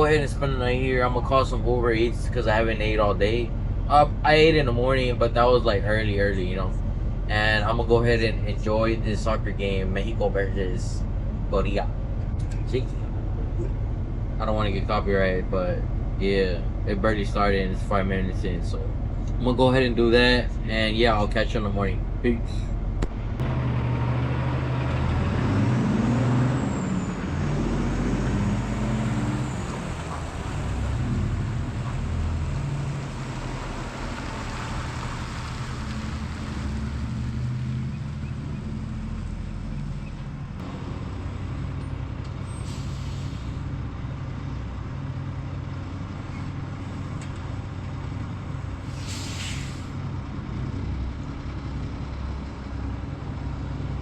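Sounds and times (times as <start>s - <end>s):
diesel truck engine running: 0.0s - 54.0s
air brake hisses: 42.5s - 43.6s, 48.8s - 50.0s.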